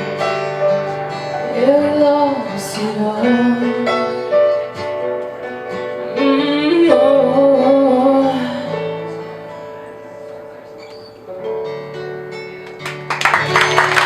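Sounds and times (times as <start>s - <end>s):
guitar accompaniment: 0.0s - 14.0s
woman singing: 1.4s - 4.5s, 6.1s - 9.4s.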